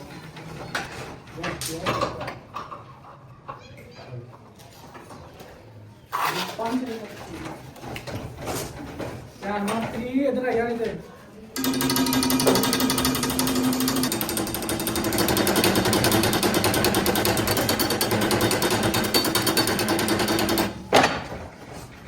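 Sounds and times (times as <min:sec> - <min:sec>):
machine hum: 0:11.6 - 0:20.8
factory machine rattling: 0:11.6 - 0:21.3.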